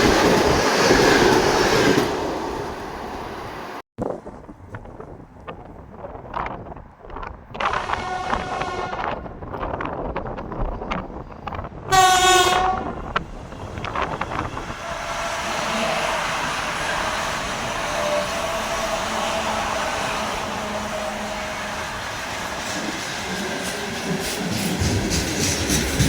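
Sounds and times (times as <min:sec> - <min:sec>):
train horn blast: 0:07.6 - 0:09.2, 0:11.9 - 0:13.1
train rushing past: 0:11.9 - 0:26.0.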